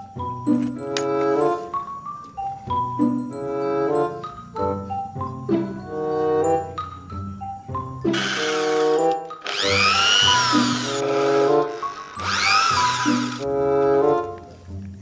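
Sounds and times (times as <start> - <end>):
drill motor whining: 8.1 - 13.4.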